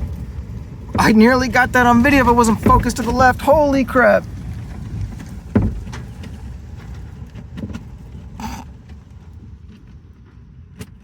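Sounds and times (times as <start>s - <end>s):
windstorm gusts buffeting house: 0.0s - 9.6s
short rattle: 1.7s - 9.8s
heavy thump: 5.5s - 6.4s
light knocks: 5.5s - 6.4s.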